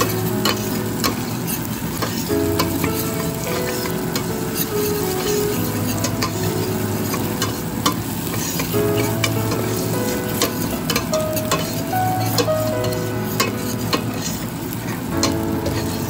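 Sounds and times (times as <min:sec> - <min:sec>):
onion sizzling in oil: 0:00.0 - 0:16.0
spoon scraping metal pot: 0:07.0 - 0:12.5, 0:15.2 - 0:16.0.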